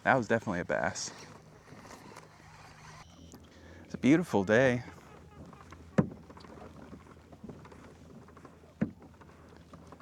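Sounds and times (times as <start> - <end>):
sharp knocks against a kayak: 5.4 - 9.2.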